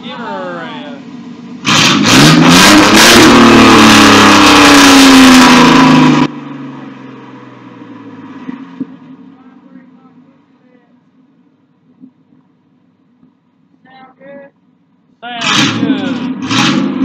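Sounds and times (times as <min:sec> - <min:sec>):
truck engine revving: 0:00.0 - 0:10.5, 0:15.4 - 0:17.0.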